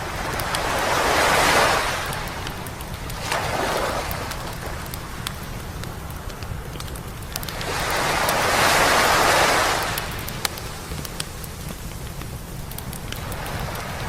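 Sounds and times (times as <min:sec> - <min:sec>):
wave breaking on beach: 0:00.0 - 0:05.2, 0:07.4 - 0:11.7, 0:13.2 - 0:14.0
campfire crackling and popping: 0:00.0 - 0:14.0.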